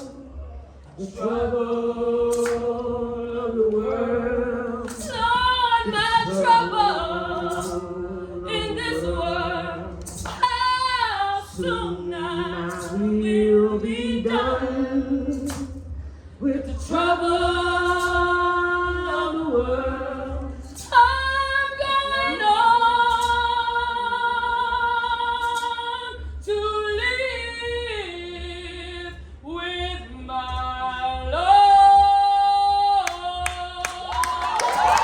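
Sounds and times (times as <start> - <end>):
woman singing a cappella: 0.0 - 0.4, 1.0 - 35.0
crowd cheering: 33.8 - 35.0.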